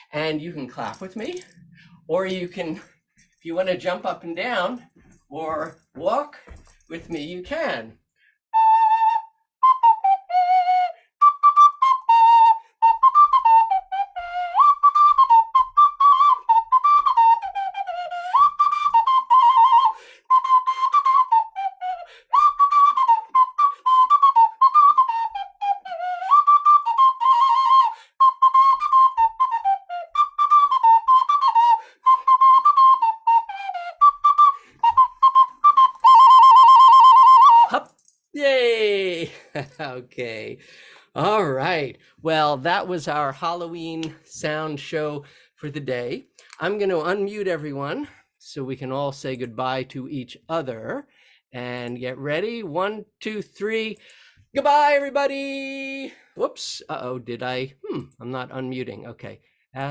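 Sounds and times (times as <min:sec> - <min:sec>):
ocarina melody: 0:08.6 - 0:38.0.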